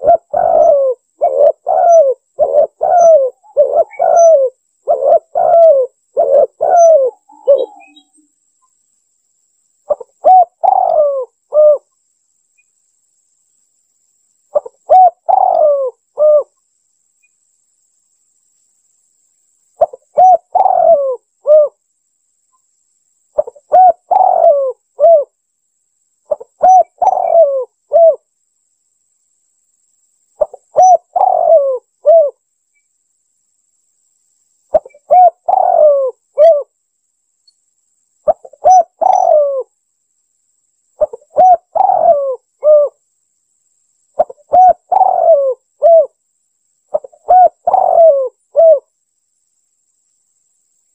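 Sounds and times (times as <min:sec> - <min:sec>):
dove cooing: 0:00.0 - 0:08.1, 0:09.9 - 0:11.9, 0:14.5 - 0:16.5, 0:19.8 - 0:21.8, 0:23.4 - 0:25.3, 0:26.3 - 0:28.2, 0:30.4 - 0:32.4, 0:34.7 - 0:36.7, 0:38.3 - 0:39.7, 0:41.0 - 0:43.0, 0:44.2 - 0:46.2, 0:46.9 - 0:48.9.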